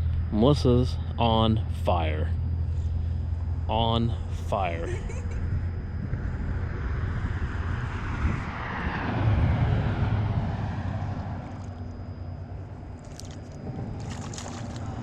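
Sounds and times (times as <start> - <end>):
engine passing by: 5.4 - 15.0.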